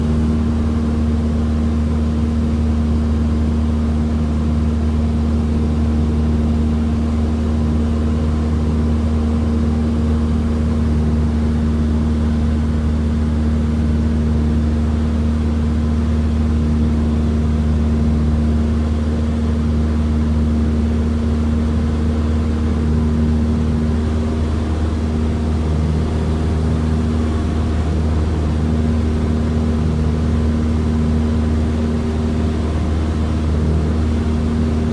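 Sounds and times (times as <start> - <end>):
airplane engine and propeller droning: 0.0 - 34.9.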